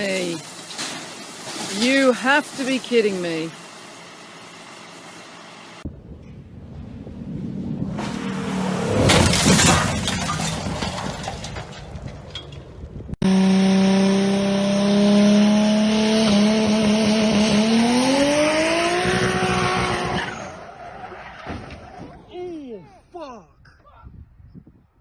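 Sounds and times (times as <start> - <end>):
tyre and road noise: 0.0 - 23.0
car engine accelerating: 5.8 - 10.2, 13.2 - 20.6.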